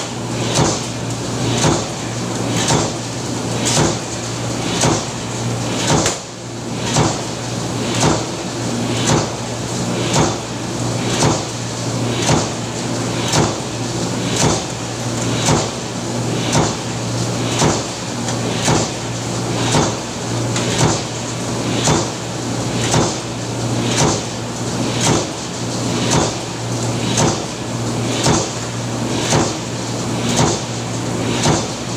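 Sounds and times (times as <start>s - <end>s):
power press stamping: 30.3s - 31.9s.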